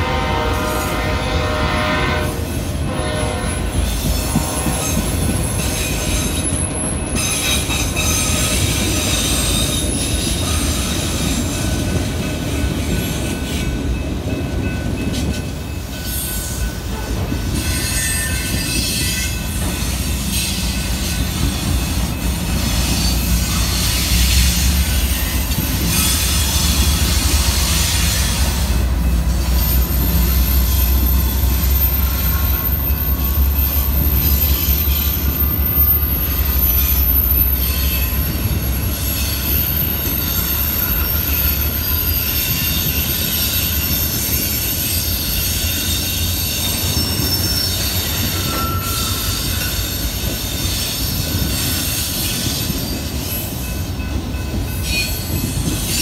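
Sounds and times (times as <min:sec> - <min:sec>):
train wheels rolling: 0:02.4 - 0:56.0
high-pitched wheel squeal: 0:04.8 - 0:11.8, 0:29.5 - 0:53.5.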